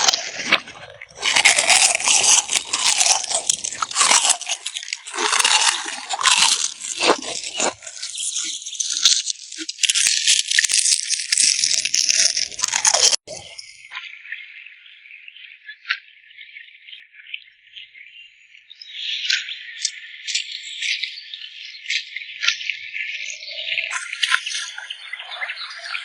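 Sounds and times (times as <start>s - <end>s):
crunching and scraping: 0.0s - 13.8s.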